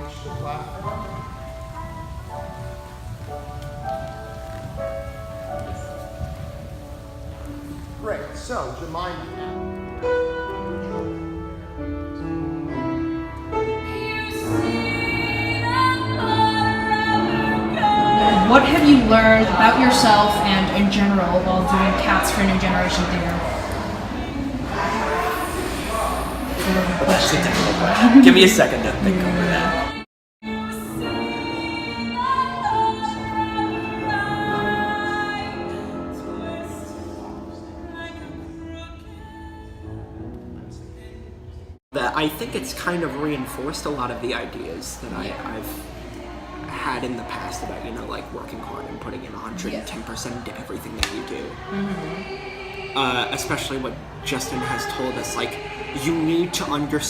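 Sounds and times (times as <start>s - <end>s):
musical accompaniment: 0.0s - 57.0s
woman singing held notes: 51.7s - 52.9s.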